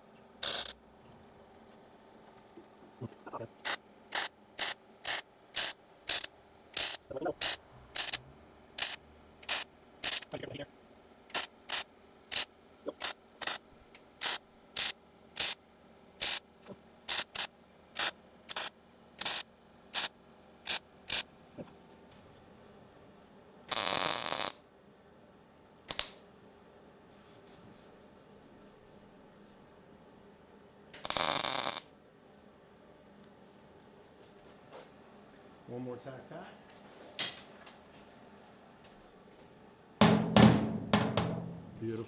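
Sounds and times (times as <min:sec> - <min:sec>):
welder crackling bursts: 0:00.4 - 0:00.8, 0:03.6 - 0:08.2, 0:08.8 - 0:10.3, 0:11.3 - 0:13.6, 0:14.2 - 0:15.6, 0:17.1 - 0:19.4, 0:20.7 - 0:21.2, 0:23.7 - 0:24.6, 0:25.9 - 0:26.2, 0:31.0 - 0:31.8.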